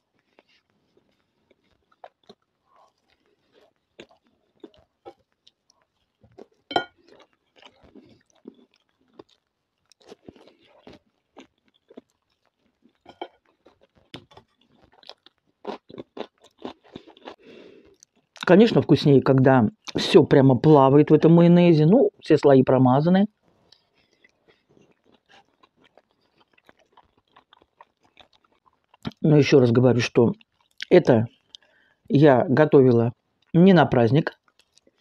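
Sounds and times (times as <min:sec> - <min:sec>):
chewing and crunching food: 0:00.0 - 0:18.6, 0:19.7 - 0:20.0, 0:23.3 - 0:32.2, 0:33.1 - 0:33.6, 0:34.2 - 0:35.0
crunchy cucumber bites: 0:03.9 - 0:18.6.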